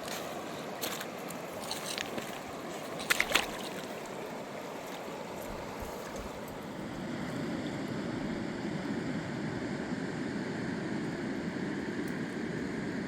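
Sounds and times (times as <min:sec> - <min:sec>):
fast river rushing: 0:00.0 - 0:07.2.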